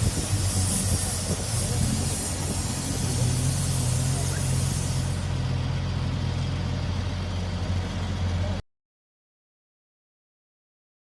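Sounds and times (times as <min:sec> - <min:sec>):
air hissing from tyre: 0:00.0 - 0:05.6
engine low rumble: 0:00.0 - 0:08.6.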